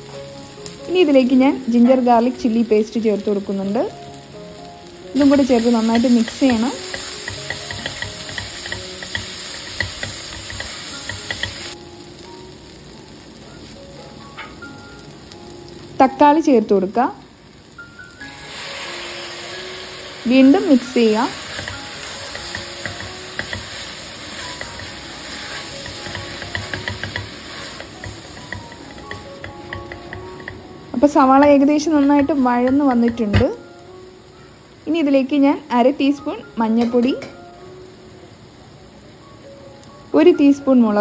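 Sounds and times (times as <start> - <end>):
onions sizzling in oil: 0.0 - 41.0
spatula scraping and knocking pot: 6.0 - 11.7, 24.4 - 30.6.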